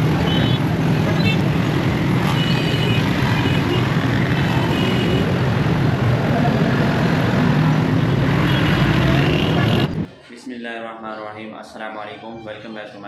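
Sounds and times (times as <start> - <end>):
traffic: 0.0 - 10.3.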